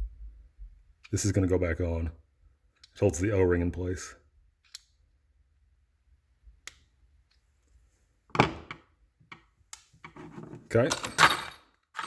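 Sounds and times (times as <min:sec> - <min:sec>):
light clicks of small parts: 0:02.8 - 0:03.0, 0:04.6 - 0:05.0, 0:06.6 - 0:07.8.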